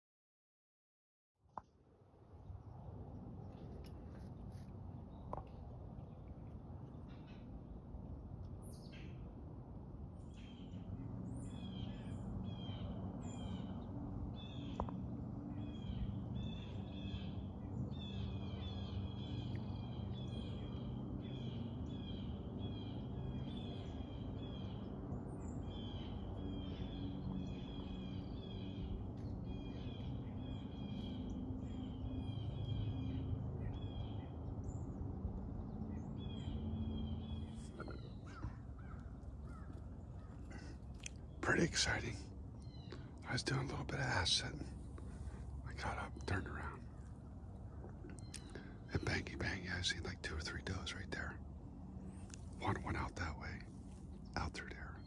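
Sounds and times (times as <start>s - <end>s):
steady low rumble: 1.8s - 55.0s.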